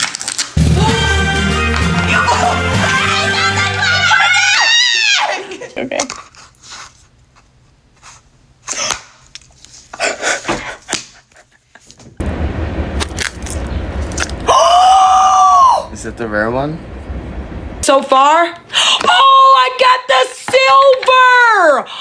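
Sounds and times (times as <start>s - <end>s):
packaging crinkling and tearing: 0.0s - 0.6s, 13.0s - 14.4s.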